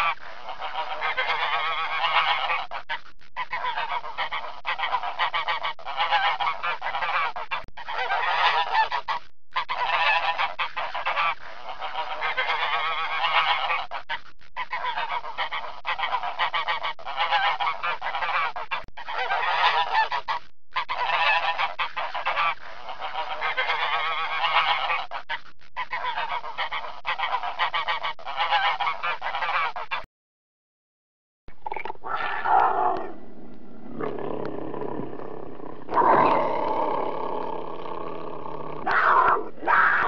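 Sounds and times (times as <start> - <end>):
swans honking: 0.0 - 30.0.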